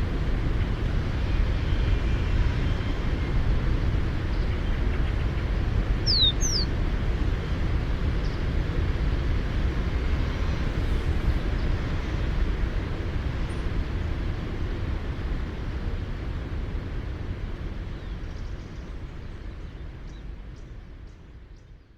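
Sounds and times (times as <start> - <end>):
steady low rumble: 0.0 - 21.8
sparrow whistling: 6.0 - 6.7.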